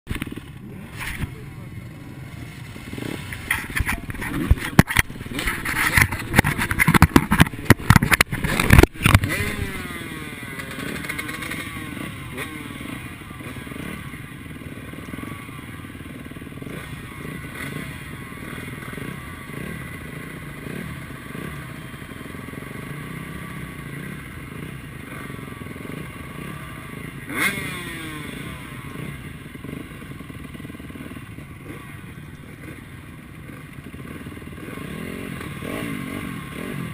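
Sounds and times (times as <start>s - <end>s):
motocross bike engines revving: 0.1s - 36.9s
sharp clattering knocks: 3.4s - 9.4s.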